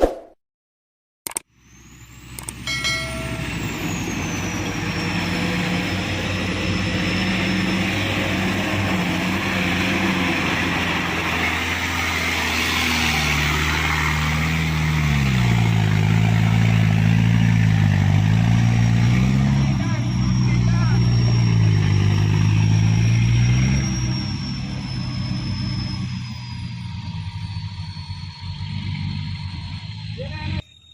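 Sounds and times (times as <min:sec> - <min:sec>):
diesel truck engine running: 0:01.5 - 0:30.9.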